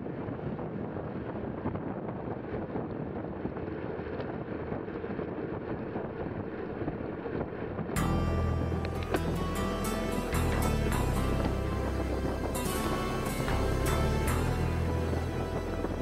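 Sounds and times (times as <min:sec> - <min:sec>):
wind rushing over microphone: 0:00.0 - 0:16.0
loud music: 0:08.0 - 0:16.0.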